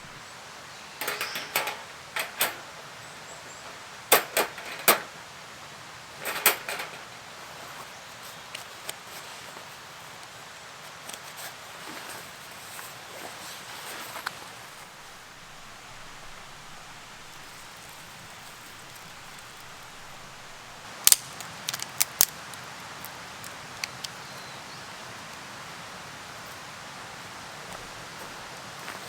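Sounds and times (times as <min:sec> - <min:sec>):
rain falling: 0:00.0 - 0:00.6, 0:14.1 - 0:24.2.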